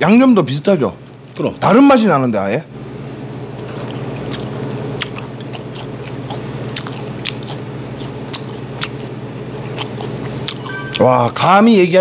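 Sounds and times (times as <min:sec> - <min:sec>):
crunchy chewing: 0:03.6 - 0:10.6.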